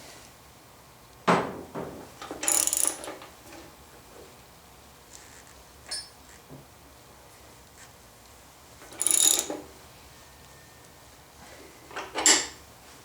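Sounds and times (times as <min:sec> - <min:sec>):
metal clink ringing: 0:05.9 - 0:06.2, 0:09.0 - 0:09.5.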